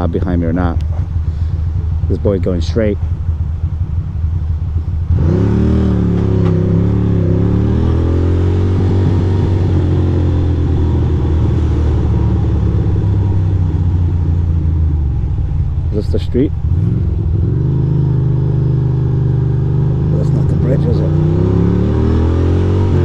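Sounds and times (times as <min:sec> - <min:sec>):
motorcycle engine pulling away: 0:05.0 - 0:15.4.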